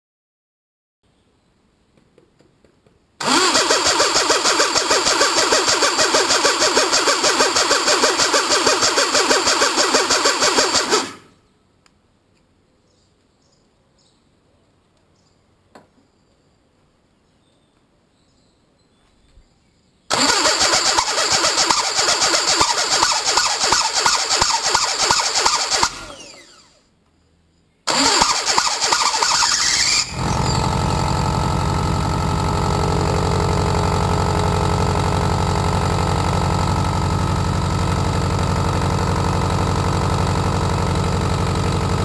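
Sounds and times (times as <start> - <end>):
diesel engine running: 3.2 - 11.3, 20.1 - 26.7, 27.9 - 42.0.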